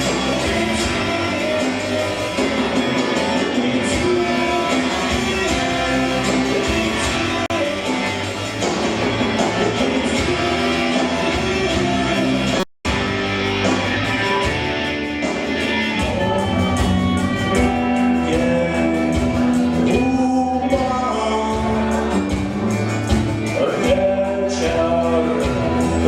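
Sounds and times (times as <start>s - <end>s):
instrumental rock music: 0.0s - 26.0s.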